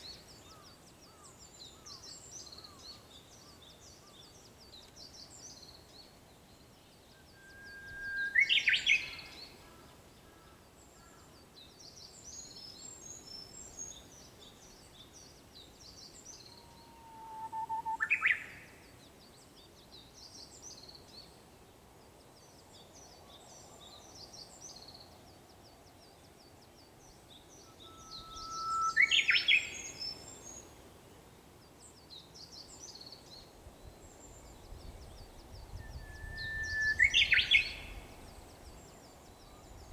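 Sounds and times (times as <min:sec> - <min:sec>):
bush warbler singing: 0:12.1 - 0:18.6, 0:27.0 - 0:30.8, 0:32.0 - 0:39.9.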